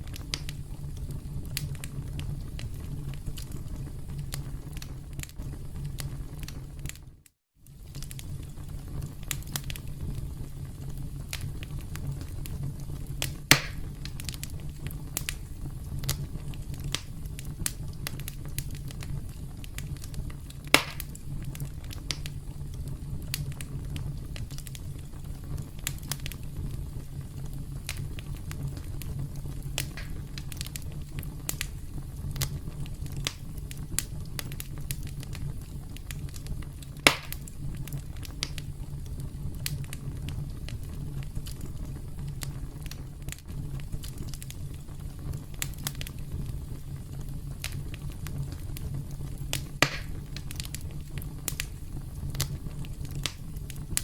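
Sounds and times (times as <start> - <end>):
campfire crackling: 0.0 - 54.0
wood pops: 13.5 - 13.8, 20.8 - 21.1, 37.1 - 37.4, 49.8 - 50.2.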